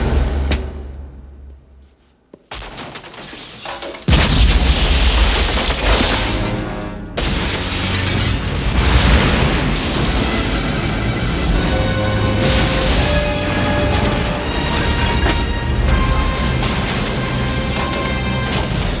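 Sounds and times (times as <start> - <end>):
crashing glass rush: 2.6 - 19.0
loud explosion blast: 4.1 - 19.0
music score: 6.0 - 19.0.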